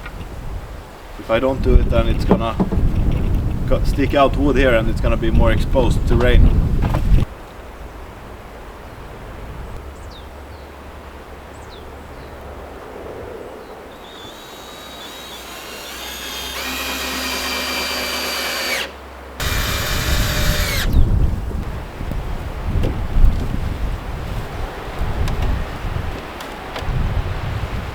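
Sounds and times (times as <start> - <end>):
wind buffeting microphone: 0.0 - 10.3, 19.4 - 27.9
power drill whining: 14.0 - 21.0.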